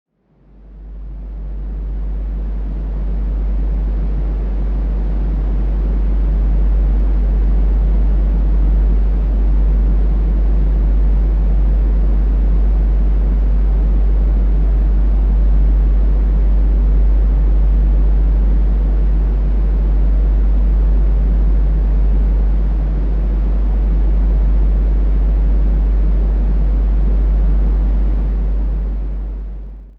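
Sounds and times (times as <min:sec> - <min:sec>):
deep steady hum: 0:00.3 - 0:29.9
low rushing brown noise: 0:00.3 - 0:29.9.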